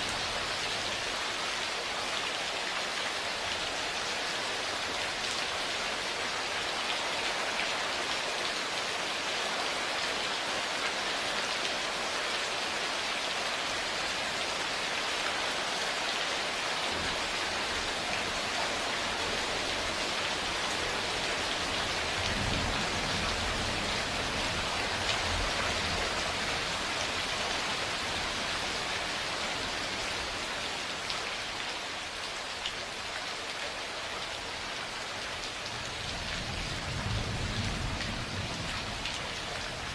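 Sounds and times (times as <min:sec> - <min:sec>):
heavy rain falling: 0:00.0 - 0:39.9
low roll of thunder: 0:36.1 - 0:39.0.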